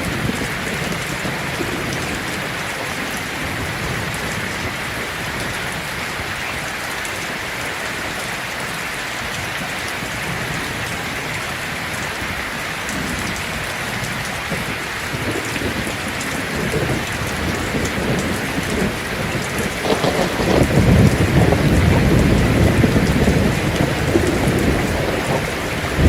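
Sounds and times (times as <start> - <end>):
heavy rain on a tin roof: 0.0 - 26.0
low thunder rumble: 12.9 - 26.0.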